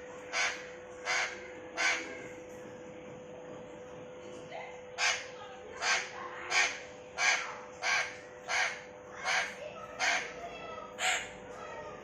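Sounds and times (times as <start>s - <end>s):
parrot squawking: 0.3s - 2.1s, 5.0s - 10.4s, 11.0s - 11.3s.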